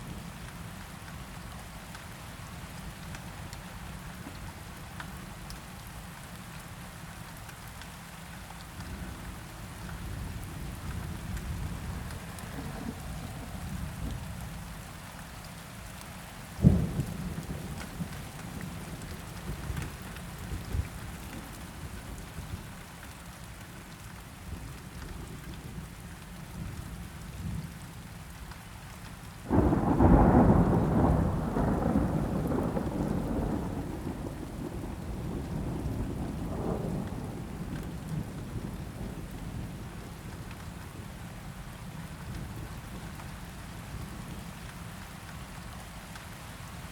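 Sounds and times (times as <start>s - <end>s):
steady rain: 0.0s - 46.9s
rolling thunderclap: 29.5s - 39.7s.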